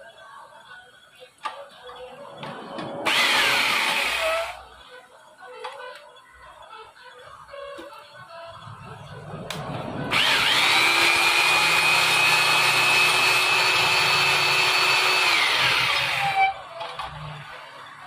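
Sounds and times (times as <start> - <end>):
power tool motor whining: 3.0 - 4.6, 10.1 - 16.6.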